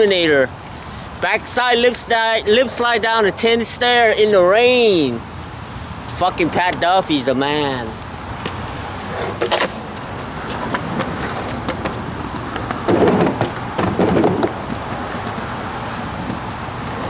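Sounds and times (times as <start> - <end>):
skateboard wheels rolling on wet pavement: 0.0 - 17.0
skateboard clicks: 8.0 - 17.0.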